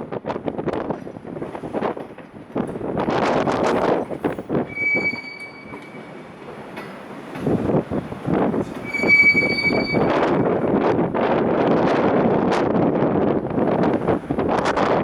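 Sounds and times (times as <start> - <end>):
freight wagons rumbling: 0.3 - 15.0
high-pitched wheel squeals: 4.7 - 6.4, 8.5 - 10.7.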